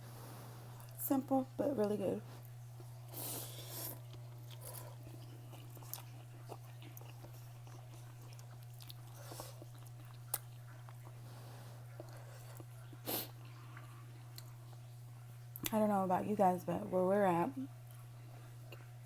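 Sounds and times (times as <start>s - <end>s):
steady low hum: 0.0s - 19.0s
person chewing: 2.4s - 14.8s.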